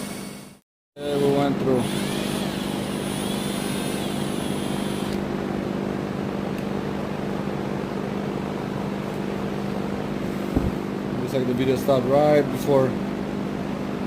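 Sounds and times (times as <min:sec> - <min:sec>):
electric drill drilling through steel: 0:00.0 - 0:00.6, 0:01.8 - 0:05.2.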